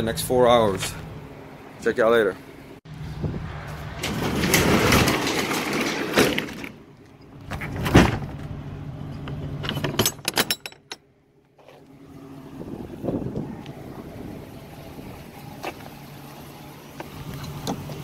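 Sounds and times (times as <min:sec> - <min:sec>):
clicks and rattles: 0:04.0 - 0:08.0.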